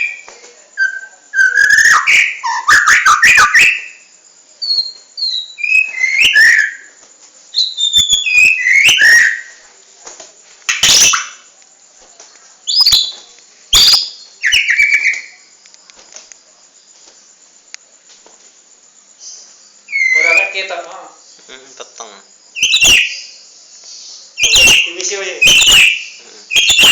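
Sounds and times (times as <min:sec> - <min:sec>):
songbird whistling: 0:00.0 - 0:09.6, 0:10.7 - 0:11.5, 0:12.7 - 0:15.4, 0:19.2 - 0:20.7, 0:22.5 - 0:26.9.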